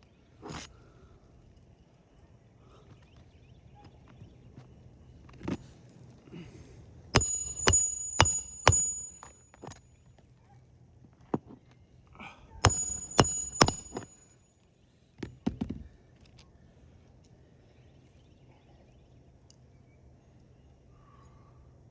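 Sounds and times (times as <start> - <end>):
hammer driving nails into shingles: 7.2 - 9.8, 12.7 - 14.2.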